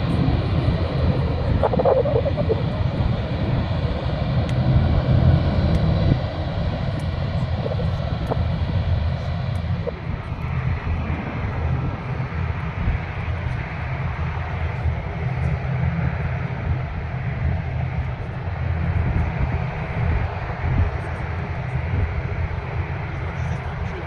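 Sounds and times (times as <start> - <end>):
jet aircraft engines running: 0.0 - 24.0.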